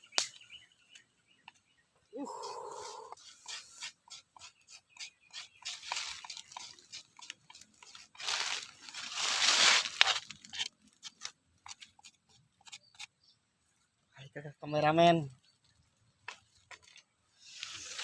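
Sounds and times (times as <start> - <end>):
crunching and rustling: 5.6 - 11.9.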